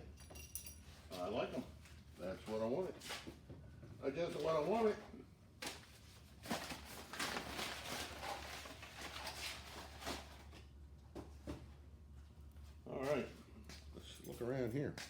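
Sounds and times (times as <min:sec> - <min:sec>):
scratchy rustling and handling: 0:06.0 - 0:10.6.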